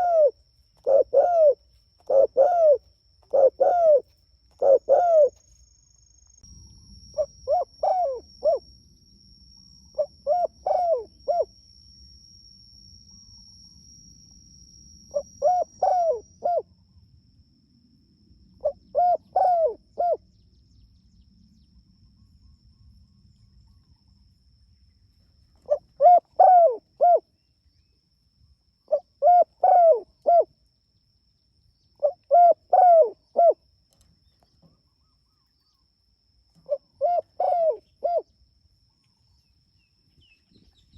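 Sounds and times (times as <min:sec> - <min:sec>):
dove cooing: 0:00.0 - 0:05.4, 0:07.2 - 0:08.6, 0:10.0 - 0:11.5, 0:15.1 - 0:16.6, 0:18.6 - 0:20.2, 0:25.7 - 0:27.2, 0:28.9 - 0:30.5, 0:32.0 - 0:33.6, 0:36.6 - 0:38.3.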